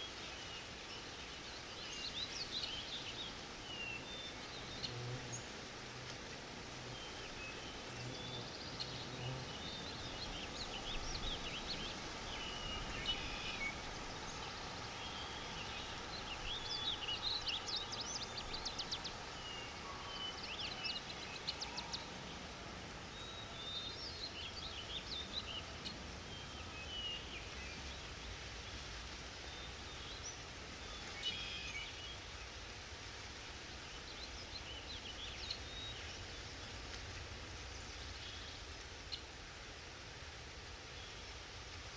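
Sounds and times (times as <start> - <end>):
soft background hiss: 0.0 - 41.9
songbirds chirping and trilling: 0.1 - 28.1.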